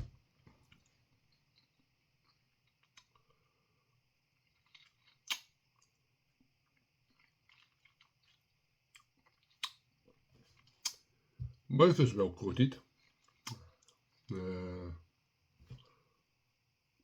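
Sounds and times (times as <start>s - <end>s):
person chewing crunchy food: 0.7s - 3.4s, 4.3s - 6.0s, 6.6s - 11.1s, 12.9s - 14.4s.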